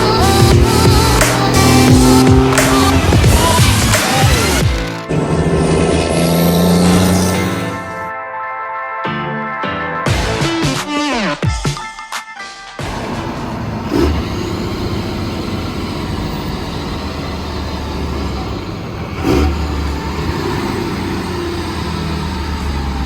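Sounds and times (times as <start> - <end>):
vehicle engine droning: 0.0 - 8.1, 12.8 - 23.0.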